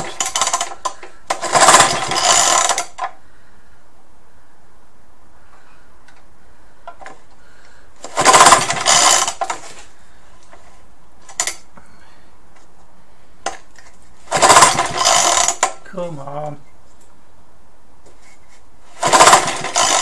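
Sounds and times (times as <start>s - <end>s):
engine turning over: 0.0s - 3.2s, 8.0s - 9.9s, 14.2s - 15.8s, 18.9s - 20.0s
recoil starter whirring pulls: 0.0s - 3.2s, 8.0s - 9.9s, 14.2s - 15.8s, 18.9s - 20.0s.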